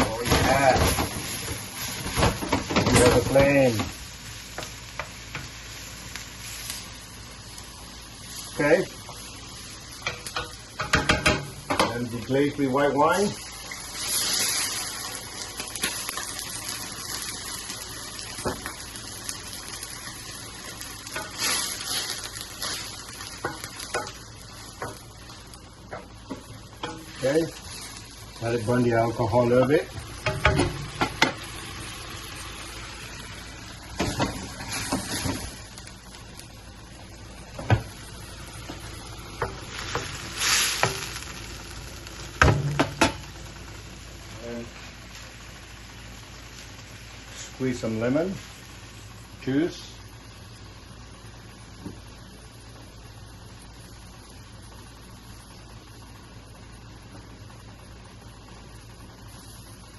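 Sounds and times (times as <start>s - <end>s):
wine sizzling in a hot pan: 0.0s - 59.9s
utensil stirring and tapping pan: 10.0s - 12.0s, 22.7s - 25.0s, 25.9s - 27.3s, 30.2s - 31.4s
utensil knocking against pan: 10.4s - 11.9s.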